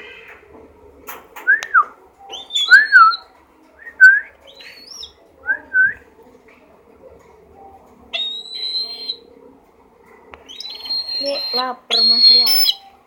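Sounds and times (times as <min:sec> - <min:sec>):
eagle calling with whistled notes: 0:01.5 - 0:06.0, 0:08.1 - 0:09.3, 0:10.4 - 0:12.9.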